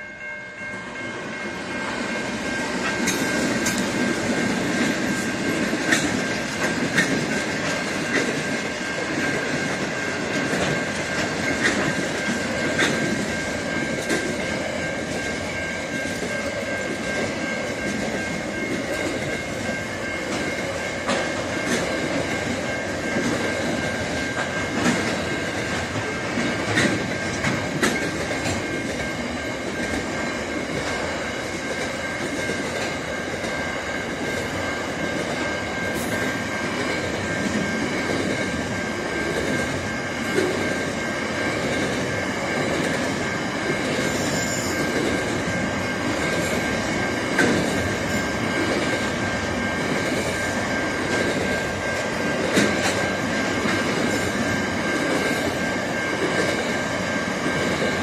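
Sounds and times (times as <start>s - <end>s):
train cars clunking: 0.0s - 58.0s
train wheels rumbling on rails: 0.0s - 58.0s
high wheel squeal: 44.0s - 45.7s.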